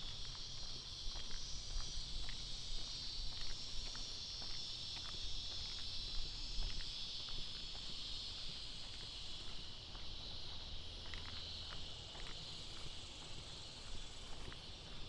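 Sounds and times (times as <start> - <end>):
faint footsteps: 0.0 - 15.0
insects buzzing: 0.0 - 15.0.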